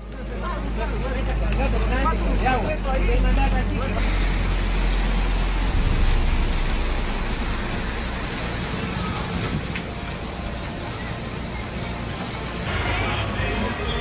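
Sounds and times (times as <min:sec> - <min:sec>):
heavy rain hissing: 0:04.0 - 0:14.0.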